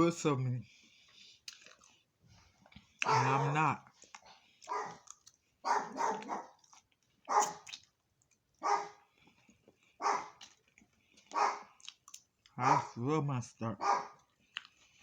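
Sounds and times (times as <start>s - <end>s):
dog barking: 3.0s - 3.6s, 4.7s - 6.6s, 7.3s - 7.7s, 8.6s - 9.0s, 10.0s - 10.4s, 11.3s - 11.7s, 12.6s - 13.0s, 13.8s - 14.2s.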